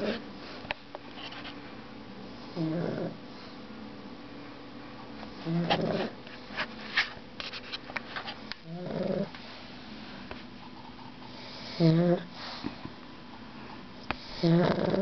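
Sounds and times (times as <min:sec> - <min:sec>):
dog snoring: 0:00.0 - 0:00.2, 0:02.4 - 0:03.5, 0:05.4 - 0:06.2, 0:08.6 - 0:09.3, 0:11.3 - 0:12.6, 0:14.2 - 0:15.0.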